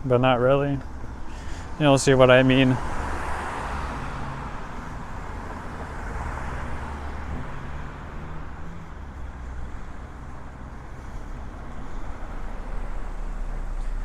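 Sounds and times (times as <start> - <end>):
low traffic rumble: 0.0 - 14.0
vehicles passing on road: 0.0 - 14.0.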